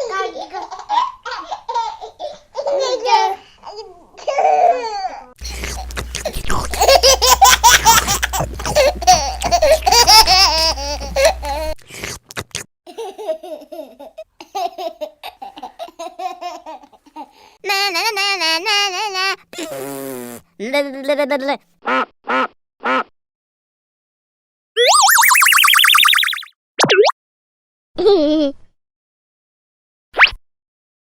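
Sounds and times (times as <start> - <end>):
baby laughing: 0.4 - 11.8.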